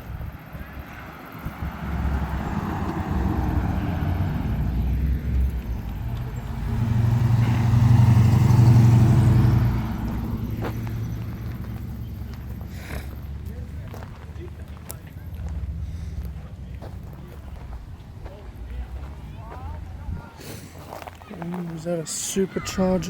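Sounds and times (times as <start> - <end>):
car driving past: 0.0 - 21.2.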